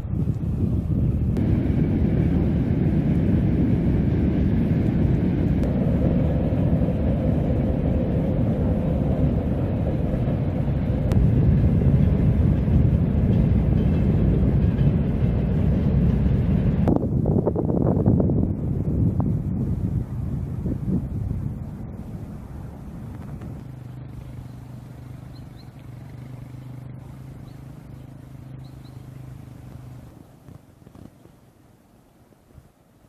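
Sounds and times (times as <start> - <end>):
stream rushing water: 19.7 - 33.0.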